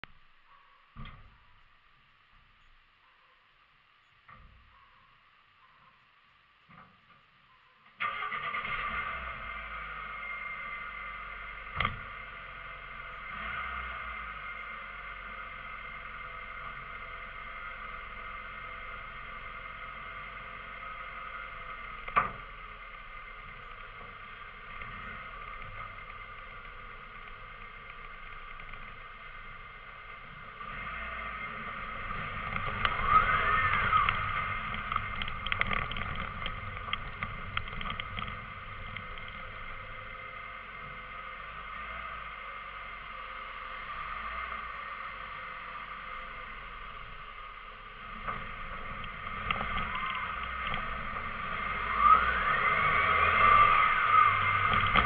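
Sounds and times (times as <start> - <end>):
car engine idling: 8.0 - 55.0
small clicks: 32.1 - 40.0.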